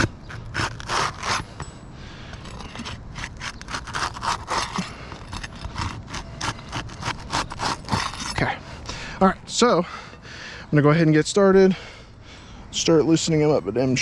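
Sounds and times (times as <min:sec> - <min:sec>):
roof shingles being scraped: 0:00.0 - 0:01.6, 0:02.4 - 0:08.4.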